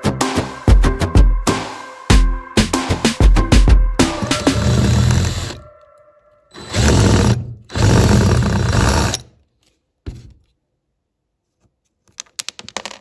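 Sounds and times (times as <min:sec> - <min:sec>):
handheld power tool running: 0:04.4 - 0:05.6, 0:06.6 - 0:09.2.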